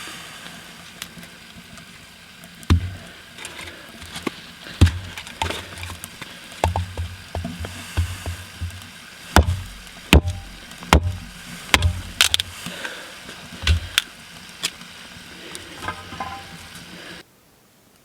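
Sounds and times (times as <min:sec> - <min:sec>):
faint steady hiss: 0:00.0 - 0:18.0
sharp knocks and clicks: 0:06.6 - 0:08.8, 0:09.4 - 0:12.4.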